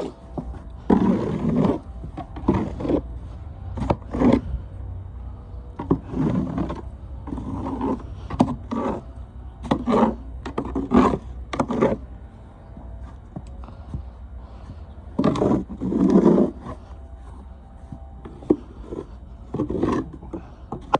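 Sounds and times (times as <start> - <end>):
snow shovel scraping snow: 0.8 - 3.1, 3.8 - 4.6, 5.8 - 12.0, 15.2 - 17.4, 18.3 - 20.5.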